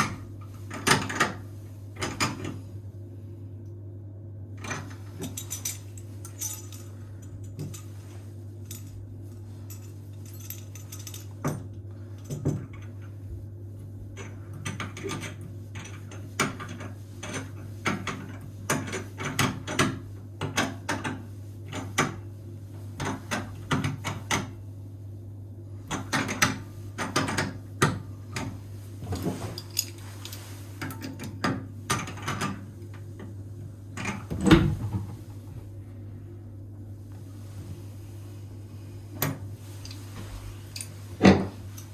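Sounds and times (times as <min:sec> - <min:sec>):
steady low hum: 0:00.0 - 0:41.9
metal tools clinking and knocking: 0:04.6 - 0:08.0.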